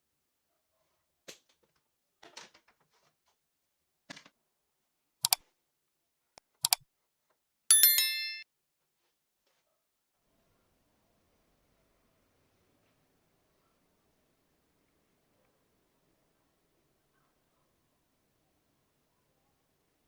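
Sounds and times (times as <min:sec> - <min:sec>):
short metallic ringing: 0:07.7 - 0:08.4.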